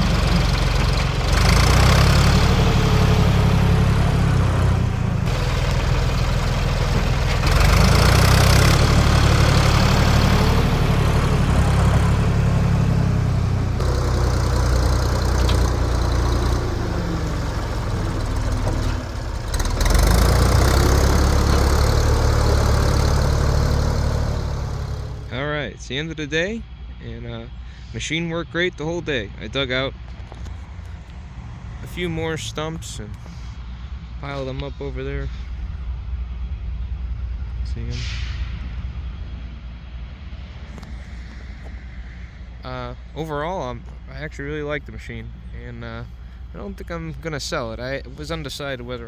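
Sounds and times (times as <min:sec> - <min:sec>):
backhoe diesel engine working: 0:00.0 - 0:25.6.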